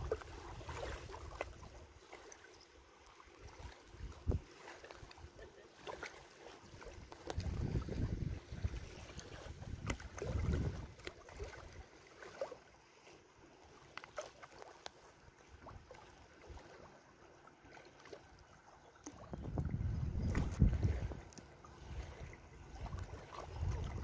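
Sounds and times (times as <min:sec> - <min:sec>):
water splashing at lake edge: 0:00.0 - 0:24.0
wind buffeting microphone: 0:04.0 - 0:04.5, 0:07.3 - 0:11.0, 0:19.2 - 0:24.0.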